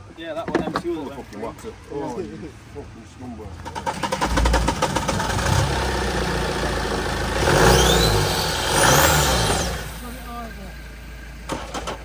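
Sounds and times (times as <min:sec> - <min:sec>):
car engine cranking: 0:03.5 - 0:10.1, 0:11.3 - 0:12.0
car engine revving with whine: 0:03.6 - 0:12.0.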